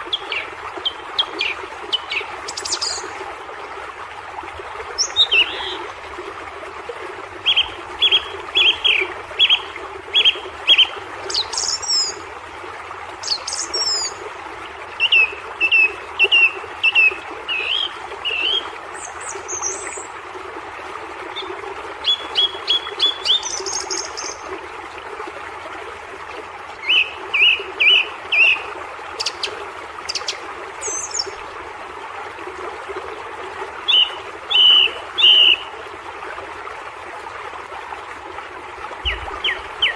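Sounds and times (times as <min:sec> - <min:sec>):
songbirds singing: 0:21.3 - 0:24.4, 0:29.2 - 0:31.4, 0:33.9 - 0:35.7, 0:39.0 - 0:39.9.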